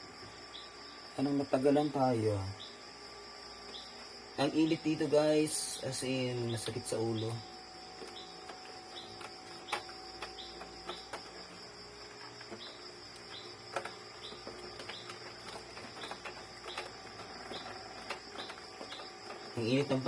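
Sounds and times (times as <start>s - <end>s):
high-pitched insect drone: 0.0s - 20.0s
short insect chirps: 0.0s - 20.0s.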